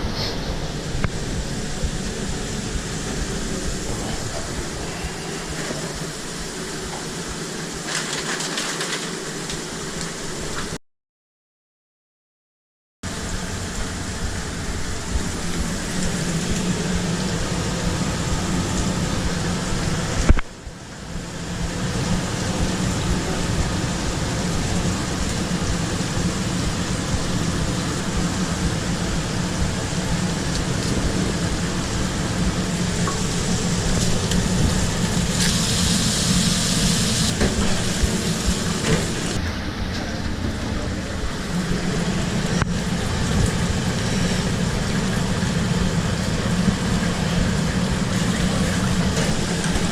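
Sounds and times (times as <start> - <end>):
sizzling hiss: 0.0 - 10.8, 13.1 - 39.5
kitchen hum: 13.1 - 49.9.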